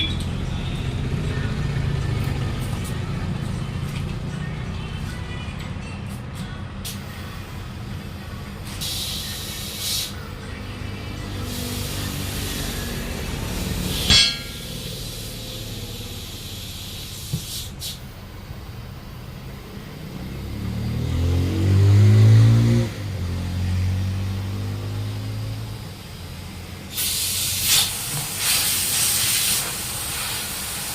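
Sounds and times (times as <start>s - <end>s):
vehicle engine idling and revving: 0.0s - 30.9s
short hiss of air: 8.7s - 10.2s, 16.4s - 18.1s, 26.9s - 30.9s.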